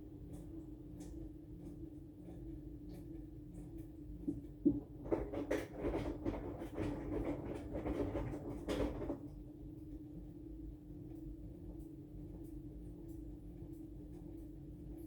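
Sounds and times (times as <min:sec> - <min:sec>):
washing machine hum: 0:00.0 - 0:15.0
laundry and water tumbling in drum: 0:03.2 - 0:09.6.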